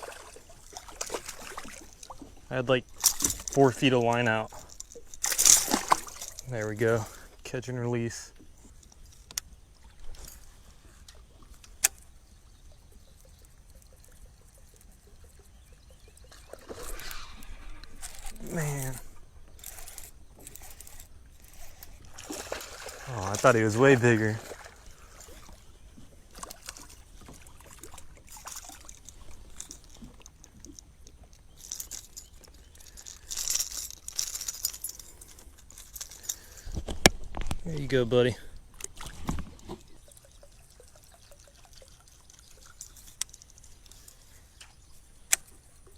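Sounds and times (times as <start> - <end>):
water splashing: 0.0 - 7.0, 20.9 - 25.6
water trickling and splashing: 0.0 - 36.5, 37.7 - 45.9
kayak handling clicks and rattles: 0.8 - 7.2, 8.3 - 12.2, 17.9 - 40.5, 41.3 - 45.9.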